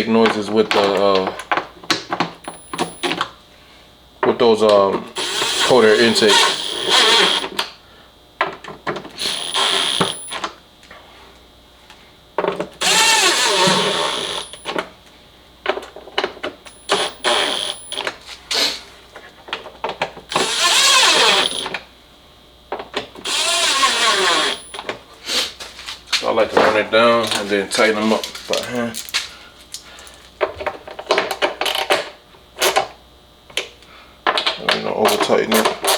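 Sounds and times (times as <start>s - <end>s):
cordless drill driving fasteners: 2.5s - 3.2s, 5.2s - 7.6s, 9.2s - 10.5s, 12.8s - 14.8s, 16.7s - 18.1s, 20.3s - 21.8s, 23.2s - 24.9s.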